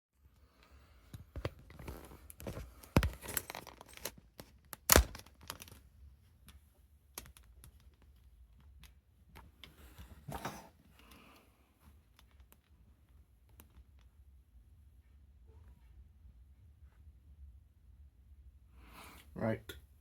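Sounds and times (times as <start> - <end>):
handling clicks and knocks: 1.2 - 5.8.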